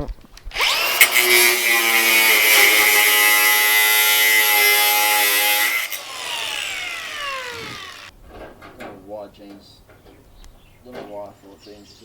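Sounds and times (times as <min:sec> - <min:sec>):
angle grinder grinding metal: 0:00.5 - 0:08.1.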